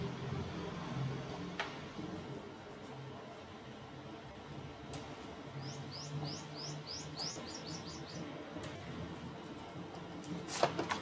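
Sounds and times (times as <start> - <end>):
steady low hum: 0.0 - 11.0
bird chirping faintly: 5.5 - 8.4.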